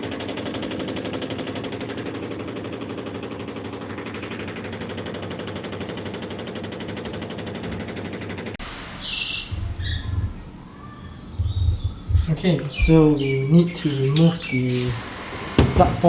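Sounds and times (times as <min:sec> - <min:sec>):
washing machine rattling: 0:08.6 - 0:16.0.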